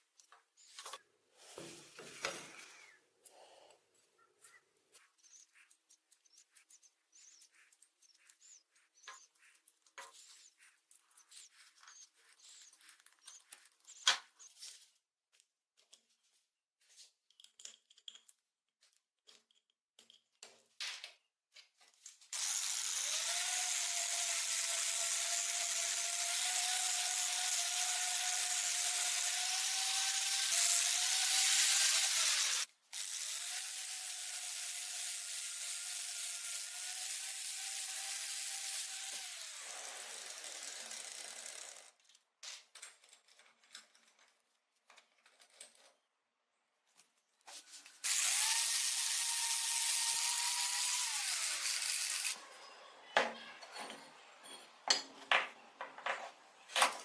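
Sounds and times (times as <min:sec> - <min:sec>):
power tool whining: 0:22.4 - 0:41.9, 0:48.0 - 0:52.4.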